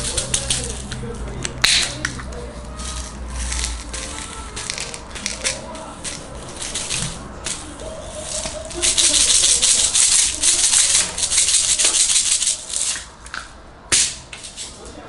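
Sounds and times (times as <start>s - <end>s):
faint voices: 0.0s - 15.0s.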